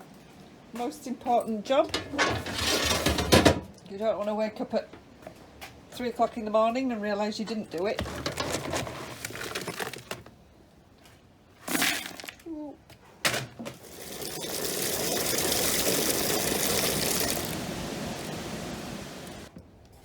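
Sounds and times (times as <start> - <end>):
water running strongly: 13.8 - 19.5.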